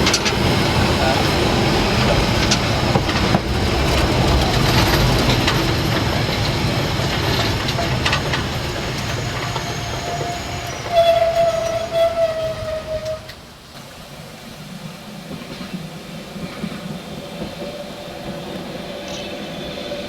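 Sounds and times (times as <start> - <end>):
steam train rumbling: 0.0 - 20.0
wheel clatter on rail joints: 0.0 - 20.0
train whistle: 9.0 - 13.5.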